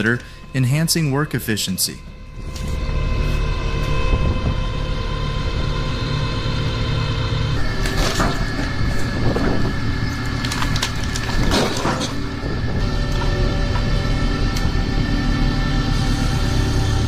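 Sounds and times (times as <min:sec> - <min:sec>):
log splitter rumbling and humming: 0:00.0 - 0:17.0
sharp wood cracks: 0:09.4 - 0:12.3.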